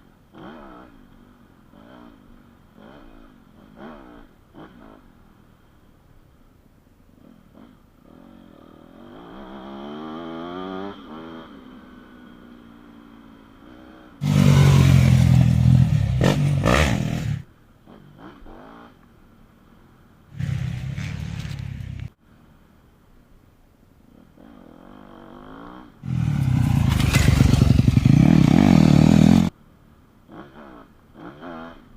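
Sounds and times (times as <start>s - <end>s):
motocross bike engine revving: 14.2s - 17.5s, 20.4s - 22.1s, 24.9s - 29.5s.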